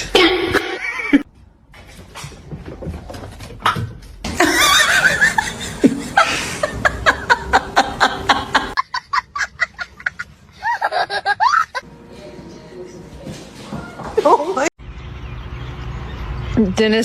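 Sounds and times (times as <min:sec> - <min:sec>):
laughter in bursts: 0:00.4 - 0:01.2, 0:04.3 - 0:11.8.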